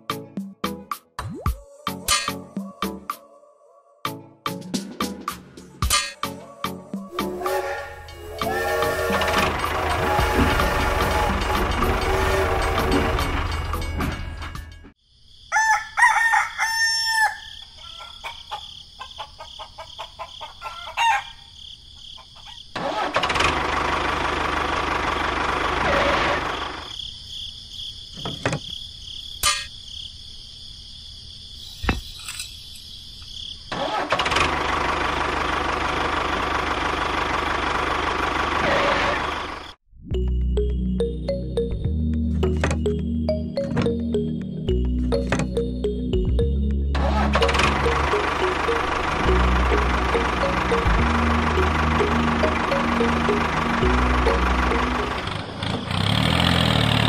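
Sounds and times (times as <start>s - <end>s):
tractor engine running: 7.1s - 15.0s, 22.8s - 26.9s, 33.7s - 39.8s, 42.1s - 57.0s
rooster crowing: 15.4s - 21.5s.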